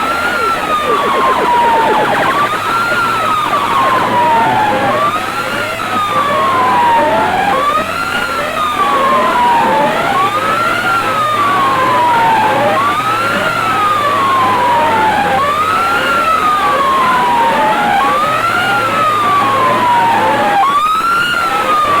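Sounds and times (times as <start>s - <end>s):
siren sound effect: 0.0s - 7.5s
quick rising chirps: 0.3s - 4.3s.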